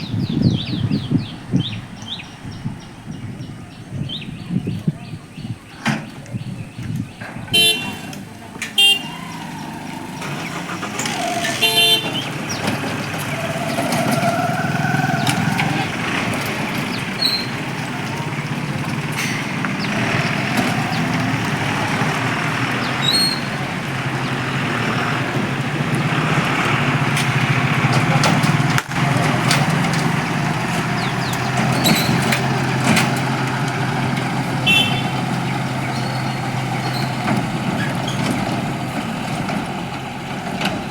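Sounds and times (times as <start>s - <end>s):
road traffic engines: 0.0s - 40.9s
vehicle horn toots: 7.5s - 18.4s, 19.8s - 25.2s, 34.5s - 37.2s.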